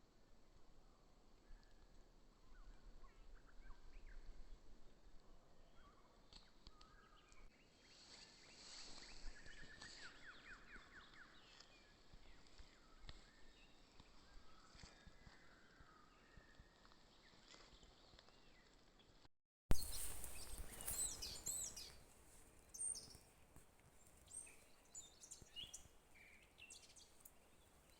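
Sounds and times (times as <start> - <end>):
bird trill: 19.7 - 22.0
small birds chirping: 19.7 - 27.9.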